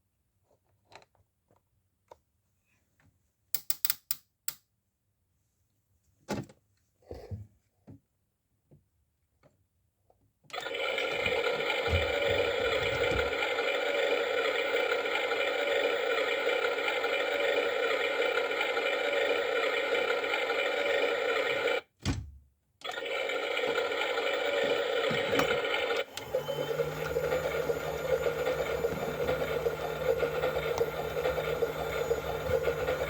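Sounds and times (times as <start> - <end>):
toy motor whirring: 10.6 - 21.8, 22.8 - 33.0.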